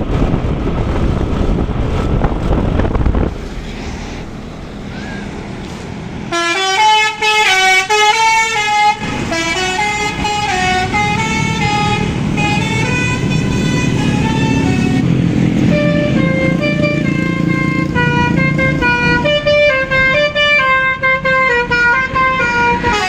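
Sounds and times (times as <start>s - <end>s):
road noise: 0.0s - 23.0s
musical bus horn tune: 6.3s - 23.0s.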